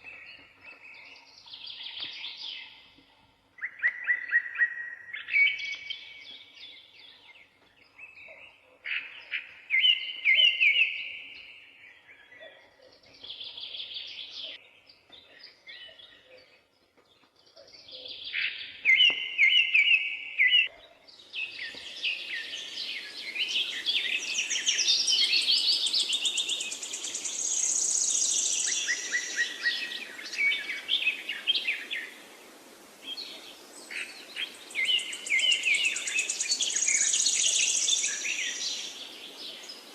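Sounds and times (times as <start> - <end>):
songbirds chirping: 0.0 - 39.9
background hiss: 21.1 - 39.9.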